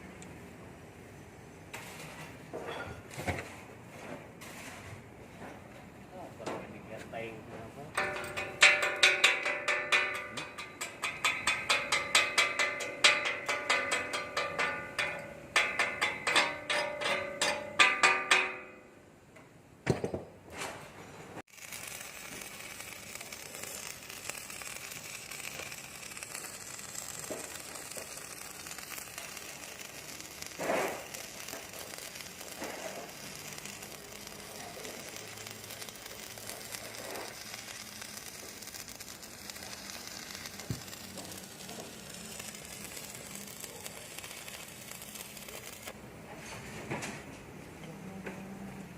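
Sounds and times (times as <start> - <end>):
arc welding crackling hiss: 6.8 - 18.6, 21.5 - 46.0.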